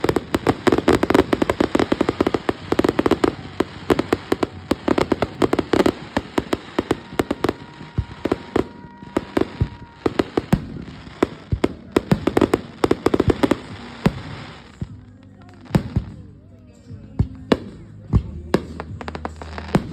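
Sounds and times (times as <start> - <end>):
fireworks cracking and popping: 0.0 - 19.9.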